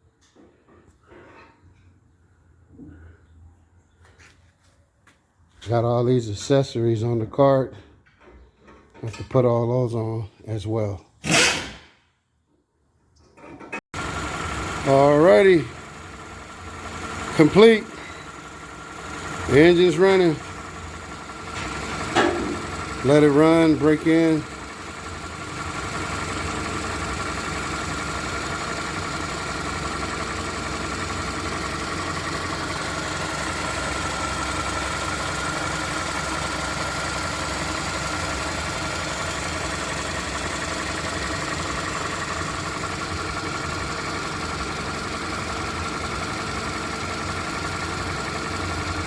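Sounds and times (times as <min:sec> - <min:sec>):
car engine idling: 0:14.0 - 0:49.0.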